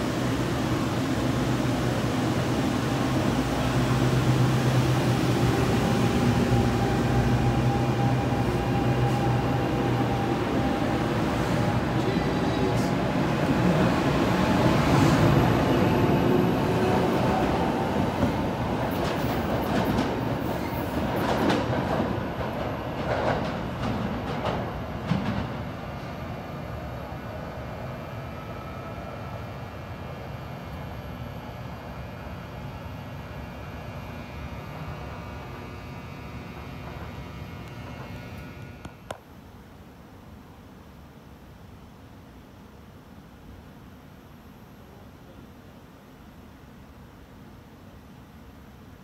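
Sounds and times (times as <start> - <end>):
electric train rumbling past: 0.0 - 39.0.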